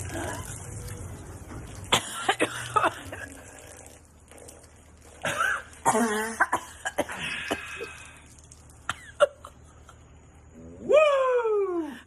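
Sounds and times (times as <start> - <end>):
people coughing and sputtering: 1.9 - 3.7, 5.1 - 8.1.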